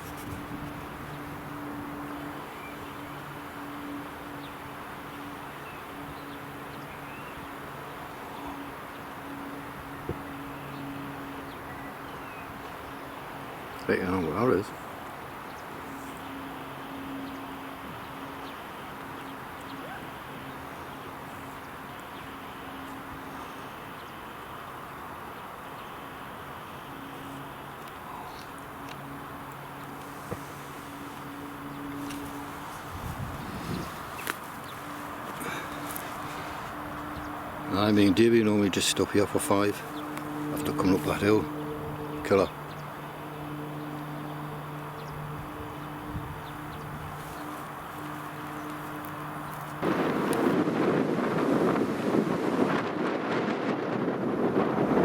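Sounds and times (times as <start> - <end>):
wind on microphone: 0.0 - 3.0, 29.8 - 38.3, 45.0 - 55.0
bicycle tyre noise on road: 0.0 - 4.0, 26.1 - 38.5, 45.4 - 55.0
low hum: 25.8 - 55.0
wind rushing: 32.4 - 36.9, 49.8 - 55.0.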